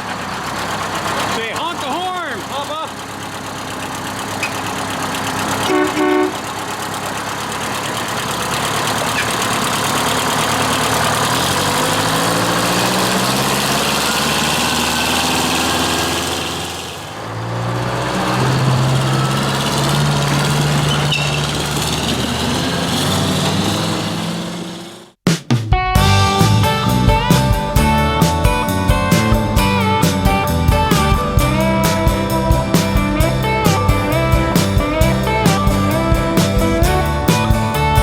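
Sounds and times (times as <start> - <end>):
diesel truck engine accelerating: 0.0 - 25.2, 26.0 - 38.0
truck horn blast: 5.4 - 6.7, 11.3 - 25.1.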